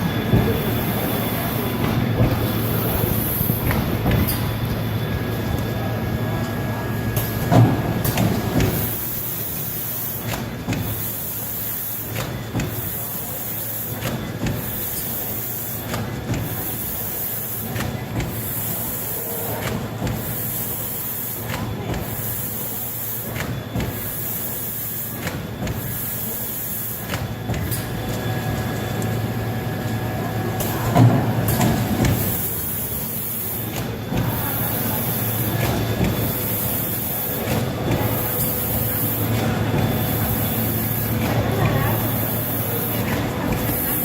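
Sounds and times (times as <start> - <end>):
bag-making machine hum: 0.0 - 44.0
machine knock and rumble: 0.1 - 5.8, 7.2 - 9.0, 12.1 - 12.8, 33.6 - 44.0.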